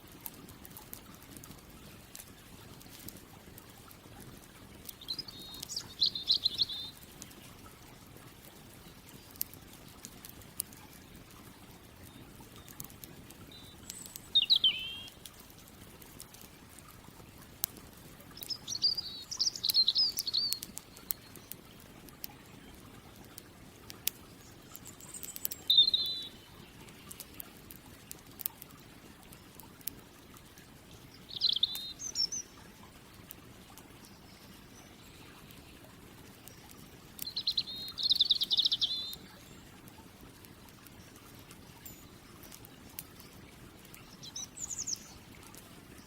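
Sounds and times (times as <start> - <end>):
campfire crackling: 0.0 - 46.0
songbird trilling: 5.0 - 7.0, 13.5 - 15.2, 18.4 - 20.7, 24.9 - 26.5, 31.3 - 32.5, 37.2 - 39.2.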